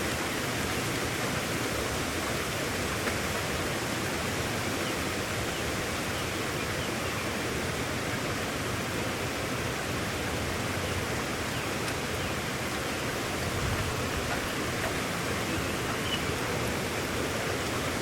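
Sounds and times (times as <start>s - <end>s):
rain falling: 9.6s - 18.0s.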